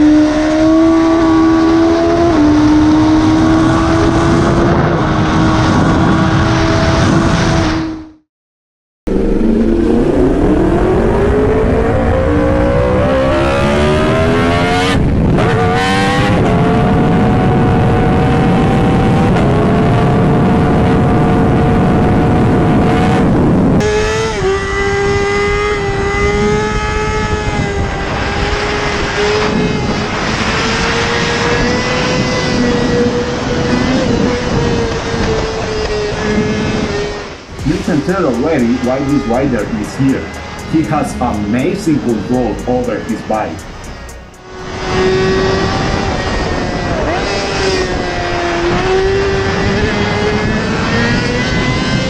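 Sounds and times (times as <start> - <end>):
motorcycle engine revving: 0.0 - 8.2, 9.1 - 52.0.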